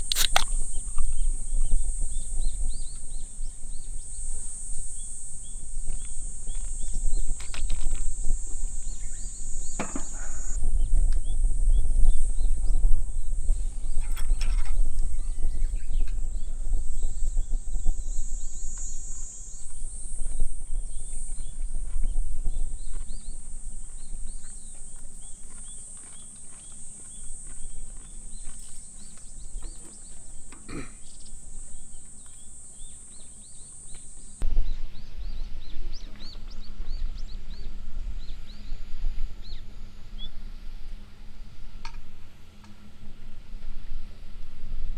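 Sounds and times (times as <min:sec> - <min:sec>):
high-pitched buzz: 0:00.0 - 0:25.0
birds chirping: 0:00.0 - 0:43.3
low rumble: 0:10.5 - 0:18.6, 0:34.4 - 0:42.3.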